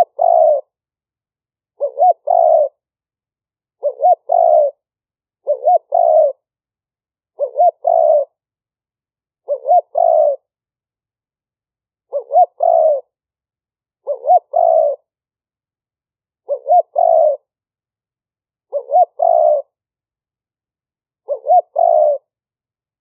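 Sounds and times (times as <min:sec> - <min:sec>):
dove cooing: 0:00.0 - 0:00.8, 0:01.8 - 0:02.8, 0:03.8 - 0:04.8, 0:05.4 - 0:06.5, 0:07.3 - 0:08.4, 0:09.4 - 0:10.5, 0:12.0 - 0:13.2, 0:14.0 - 0:15.1, 0:16.4 - 0:17.5, 0:18.7 - 0:19.8, 0:21.2 - 0:22.3.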